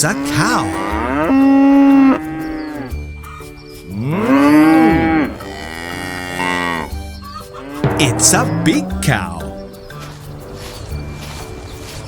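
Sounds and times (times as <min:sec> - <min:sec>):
cow mooing: 0:00.0 - 0:03.0, 0:04.0 - 0:07.0.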